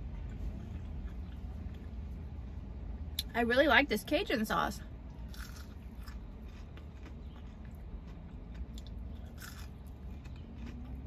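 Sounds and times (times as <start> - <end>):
chewing crunchy nugget: 0.0 - 2.0, 5.2 - 11.0
steady low hum: 0.0 - 11.0.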